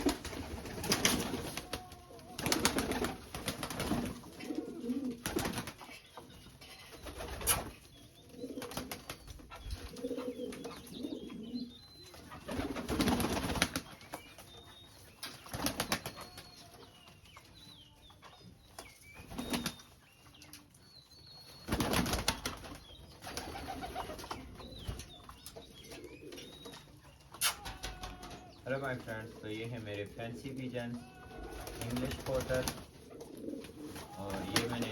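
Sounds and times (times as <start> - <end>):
wings flapping: 0.0 - 5.9, 7.0 - 7.9, 8.6 - 10.8, 12.2 - 14.2, 15.2 - 16.5, 19.2 - 19.8, 21.6 - 25.0, 27.4 - 28.5, 31.3 - 34.9
pigeons cooing: 0.0 - 13.8, 23.2 - 26.8, 31.2 - 34.9.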